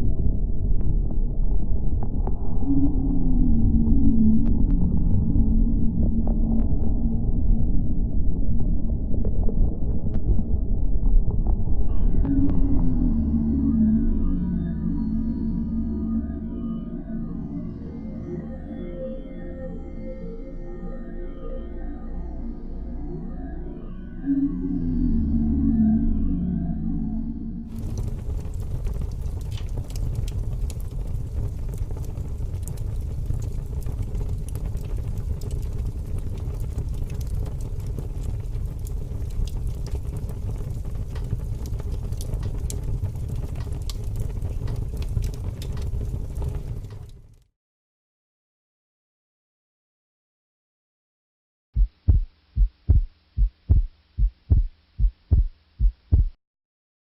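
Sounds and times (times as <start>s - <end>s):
heartbeat thumps: 51.8s - 56.4s.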